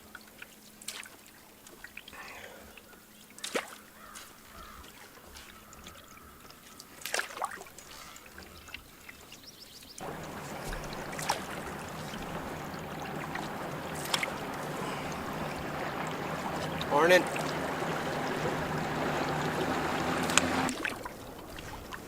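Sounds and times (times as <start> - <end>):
water trickling drips: 0.0 - 22.0
paddle splashing in water: 7.0 - 9.4, 10.0 - 22.0
steady hiss of water or wind: 7.7 - 22.0.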